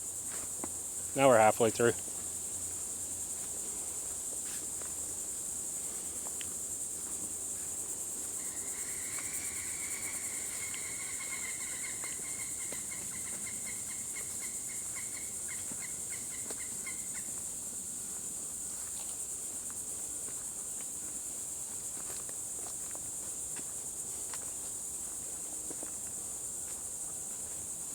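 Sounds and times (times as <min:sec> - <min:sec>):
high-pitched insect chorus: 0:00.0 - 0:27.9
rapid repeated animal calls: 0:08.4 - 0:17.4.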